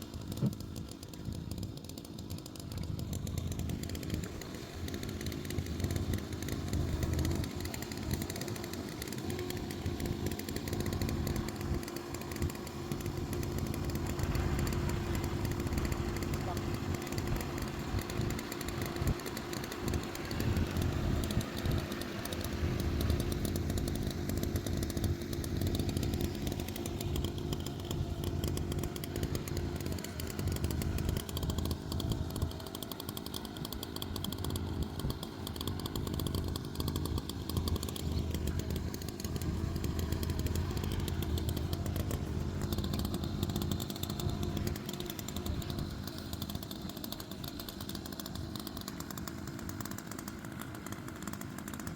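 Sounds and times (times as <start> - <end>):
chainsaw cutting logs: 0.0 - 51.9.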